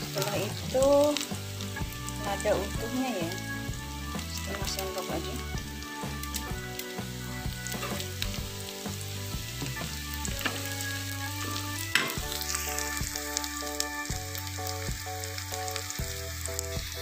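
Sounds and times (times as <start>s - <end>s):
onions sizzling in oil: 0.0s - 17.0s
metal spatula scraping pan: 7.7s - 8.2s.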